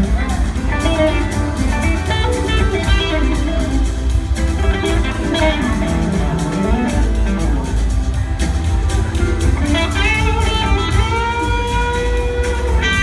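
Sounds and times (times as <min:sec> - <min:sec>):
bass guitar: 0:00.0 - 0:13.0
drum kit: 0:00.0 - 0:13.0
electric guitar sliding melody: 0:00.0 - 0:13.0.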